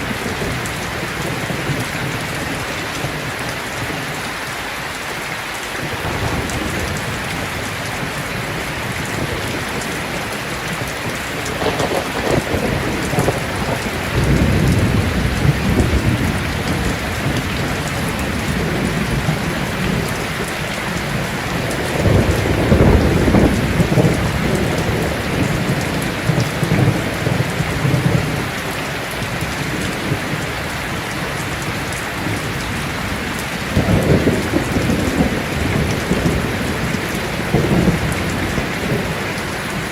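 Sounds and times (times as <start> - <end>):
heavy rain: 0.0 - 39.9
thunder rumbling: 5.9 - 39.9.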